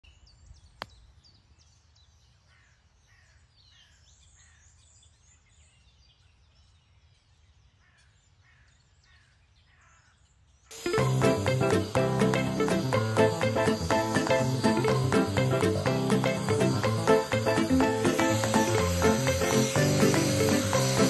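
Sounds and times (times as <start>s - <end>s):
music: 10.8s - 21.0s.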